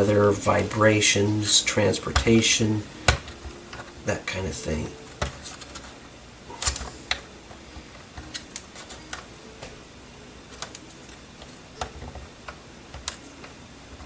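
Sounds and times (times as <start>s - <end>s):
plastic parts clicking and tapping: 2.1s - 4.0s, 5.1s - 6.0s, 6.6s - 7.3s, 8.0s - 9.8s, 10.5s - 14.0s.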